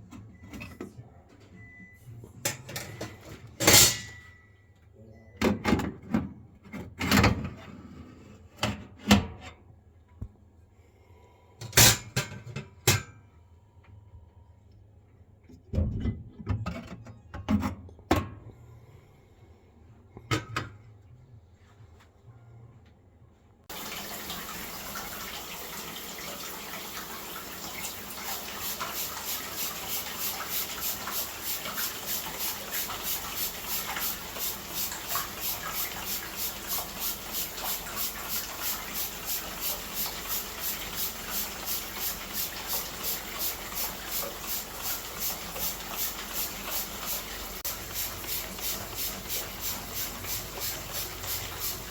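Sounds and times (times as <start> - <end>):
tap water running into sink: 23.7 - 51.9.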